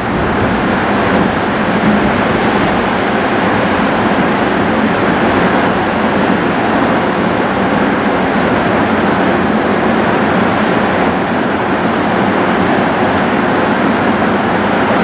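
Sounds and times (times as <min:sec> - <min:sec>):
heavy rain falling: 0:00.0 - 0:10.6.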